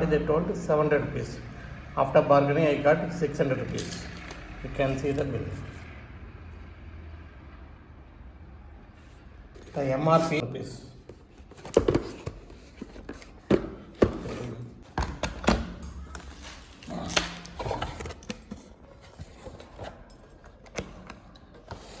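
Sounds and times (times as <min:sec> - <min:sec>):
handling knocks and clicks: 0:11.1 - 0:16.3, 0:17.1 - 0:22.0.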